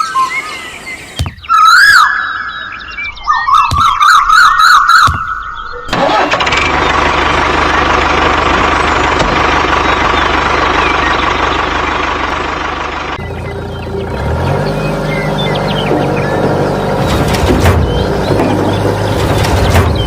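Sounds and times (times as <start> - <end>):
warbling whistle-like chirps: 0.0 - 5.9
engine rumbling: 5.0 - 20.0.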